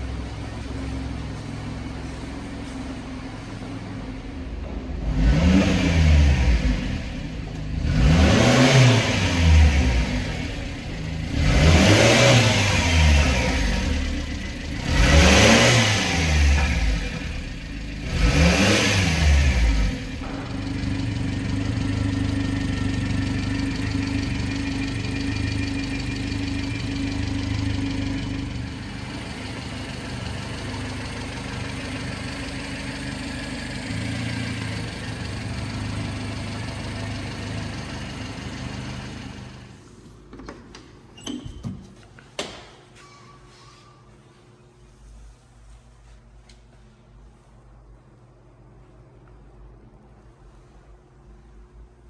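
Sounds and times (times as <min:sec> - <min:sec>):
truck engine revving and idling: 0:00.0 - 0:39.8.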